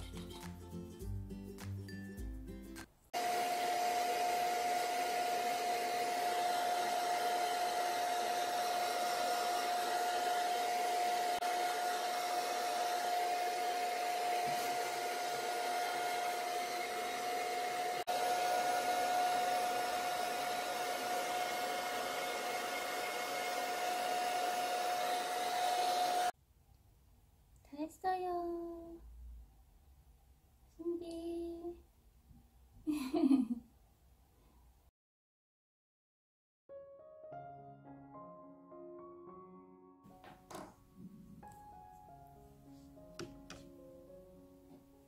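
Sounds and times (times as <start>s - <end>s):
background music: 0.0s - 3.0s, 36.8s - 45.0s
hair dryer running: 3.2s - 26.4s, 43.1s - 43.7s.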